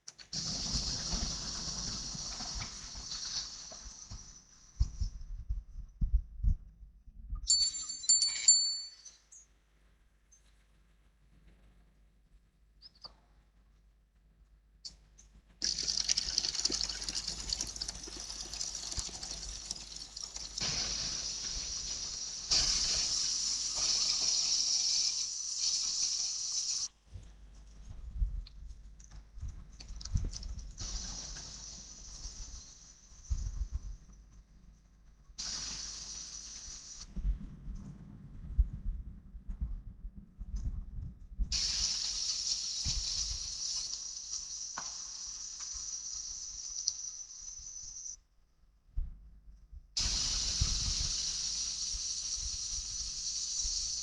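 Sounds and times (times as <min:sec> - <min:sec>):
rain falling: 0:00.4 - 0:04.7, 0:15.6 - 0:26.9, 0:41.6 - 0:47.5.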